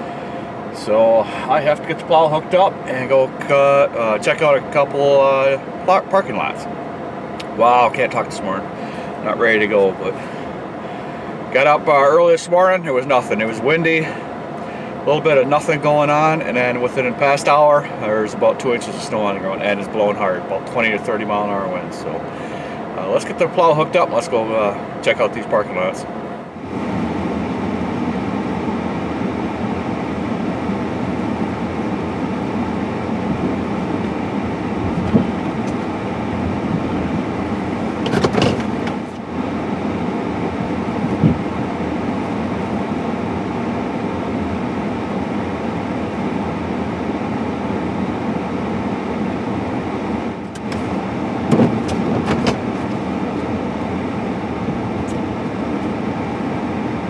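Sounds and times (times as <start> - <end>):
vehicle engine rumbling: 0.0 - 12.0, 25.7 - 43.5, 49.1 - 56.8
knocks: 38.0 - 39.0, 50.6 - 52.6.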